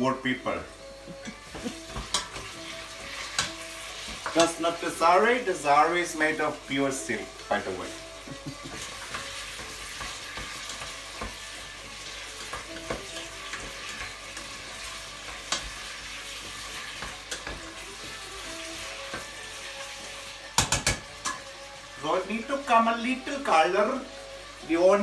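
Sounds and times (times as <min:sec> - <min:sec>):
food sizzling in hot oil: 0:00.0 - 0:25.0
utensil knocking against pan: 0:01.2 - 0:04.6, 0:20.6 - 0:21.4.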